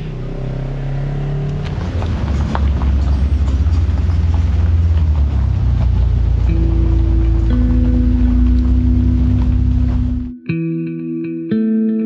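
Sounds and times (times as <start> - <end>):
vehicle engine droning: 0.0 - 10.4
music: 6.4 - 12.0.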